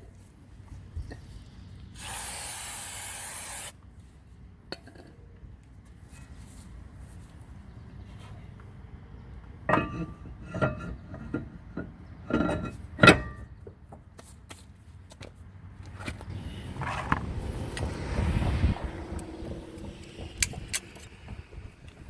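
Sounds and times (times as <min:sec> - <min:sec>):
low rushing rumble: 0:16.4 - 0:22.0.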